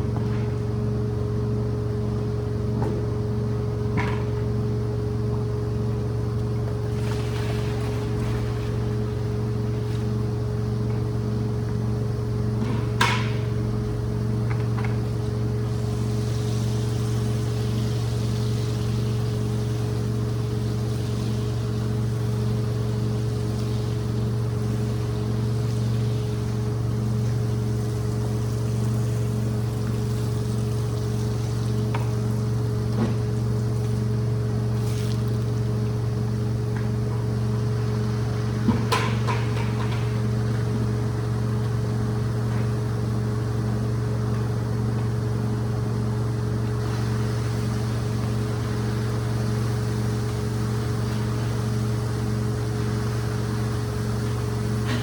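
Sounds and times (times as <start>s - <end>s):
cleaning machine motor hum: 0.0s - 55.0s
water and air hiss: 15.6s - 36.2s, 46.2s - 55.0s.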